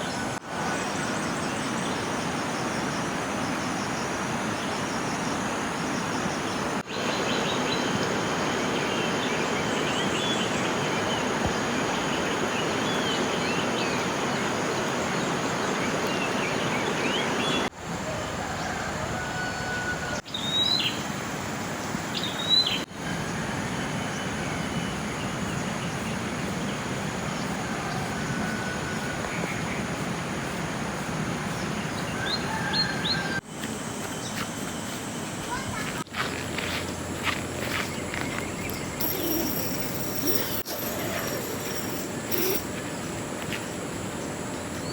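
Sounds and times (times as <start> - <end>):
birds chirping: 37.2 - 44.9.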